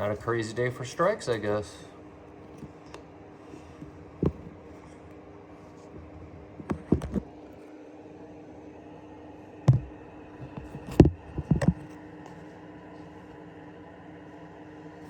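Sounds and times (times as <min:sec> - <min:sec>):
steady low hum: 0:00.0 - 0:15.0
sharp knocks and clicks: 0:04.2 - 0:04.5, 0:09.7 - 0:09.9.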